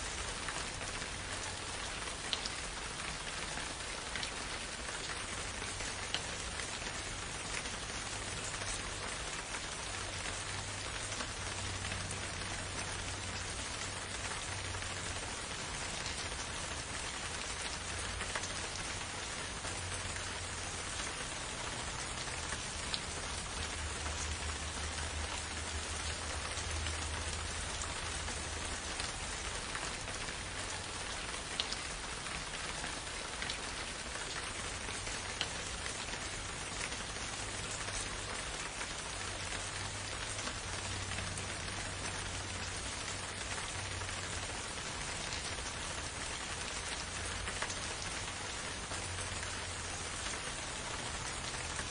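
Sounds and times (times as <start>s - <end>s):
steady rain hiss: 0.0s - 51.9s.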